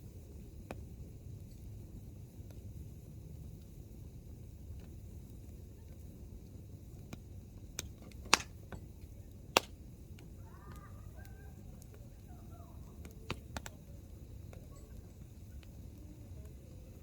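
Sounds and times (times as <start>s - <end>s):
campfire crackling: 0.0s - 17.0s
logs popping: 7.8s - 11.0s.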